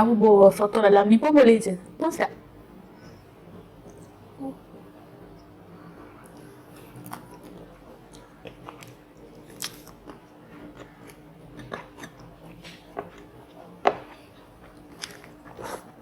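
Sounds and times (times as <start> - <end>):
chewing crunchy fried food: 6.2 - 16.0.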